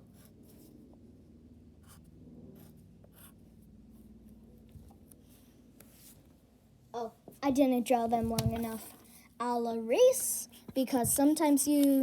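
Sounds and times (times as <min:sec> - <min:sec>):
pencil scratching on paper: 0:01.8 - 0:04.2.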